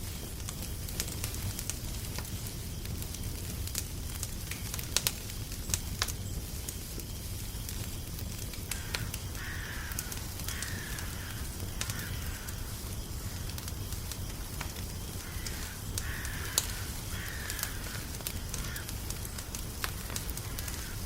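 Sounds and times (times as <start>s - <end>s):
wood fire crackling and popping: 0.0s - 21.0s
crow cawing: 8.7s - 13.5s, 15.2s - 19.1s, 20.0s - 21.0s.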